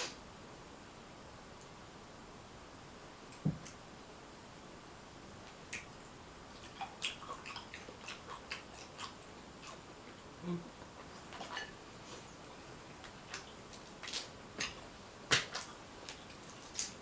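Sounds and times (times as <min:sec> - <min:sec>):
wet clicks and crackles of eating: 0:05.5 - 0:10.3, 0:12.9 - 0:17.0.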